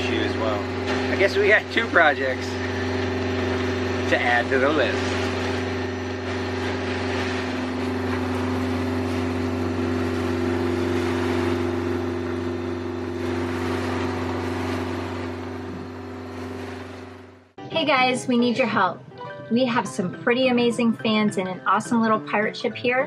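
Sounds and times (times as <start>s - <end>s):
wind and water noise: 0.0s - 17.6s
diesel engine droning: 0.0s - 18.8s.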